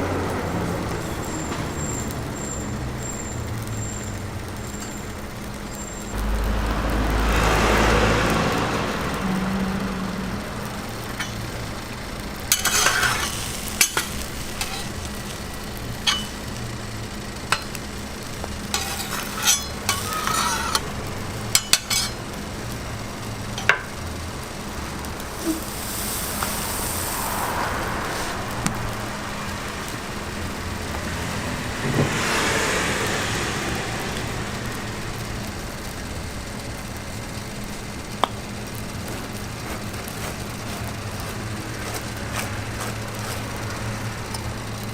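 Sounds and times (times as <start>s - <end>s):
food sizzling on a griddle: 0.0s - 44.9s
street traffic hum: 0.0s - 44.9s
utensil scraping: 12.5s - 15.4s, 18.7s - 20.9s, 25.3s - 28.5s, 39.0s - 44.4s.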